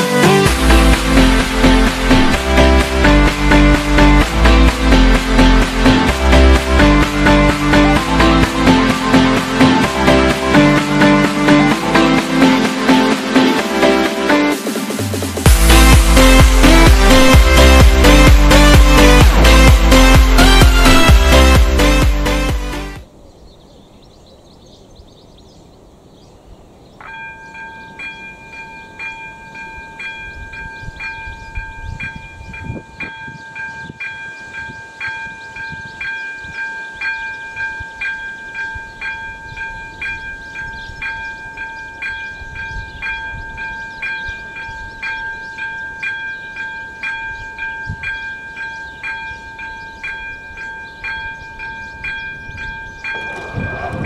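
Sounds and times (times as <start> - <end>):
level crossing bell dinging: 27.0 - 54.0.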